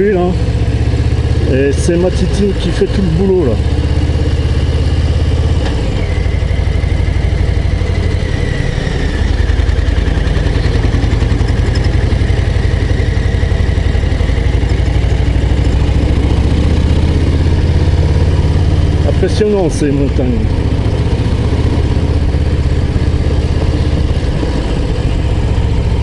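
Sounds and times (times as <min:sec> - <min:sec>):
motorcycle engine under load: 0:00.0 - 0:26.0.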